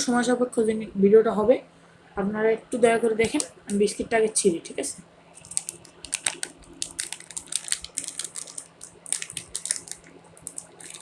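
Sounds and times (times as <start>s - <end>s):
plastic packet crinkling: 3.2s - 3.6s, 5.4s - 11.0s.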